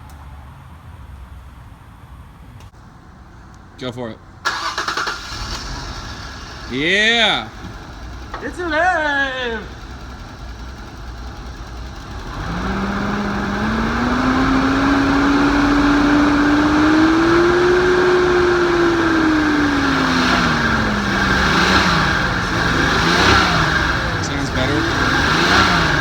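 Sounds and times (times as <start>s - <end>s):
inline-six car engine running: 4.5s - 26.0s.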